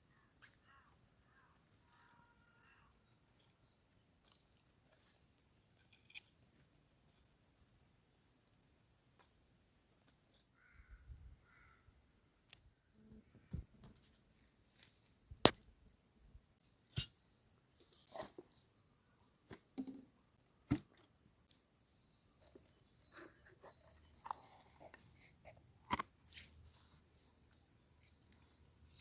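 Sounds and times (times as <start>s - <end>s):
insects chirring: 0.0s - 29.0s
pulsed insect chirps: 0.6s - 9.0s.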